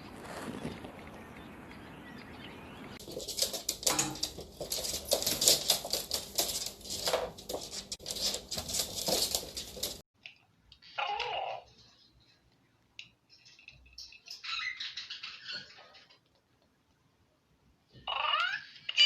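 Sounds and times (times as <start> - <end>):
parrot flapping wings: 3.0 - 10.0.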